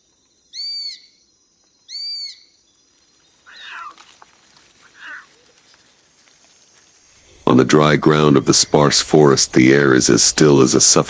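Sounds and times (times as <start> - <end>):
serval meow-like calls: 3.4 - 5.6.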